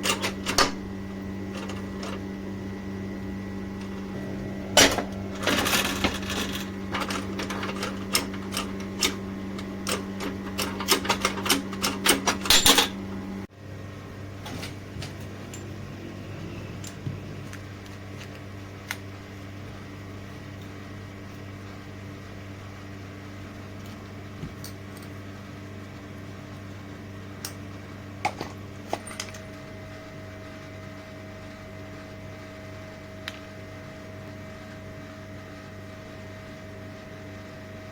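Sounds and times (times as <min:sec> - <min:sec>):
low steady hum: 0:00.0 - 0:25.2
rapid rattling and clicking: 0:03.8 - 0:13.0.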